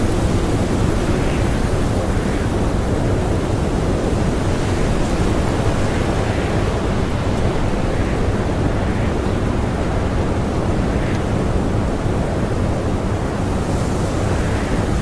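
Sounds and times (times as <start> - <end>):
blizzard wind blowing hard: 0.0 - 15.0.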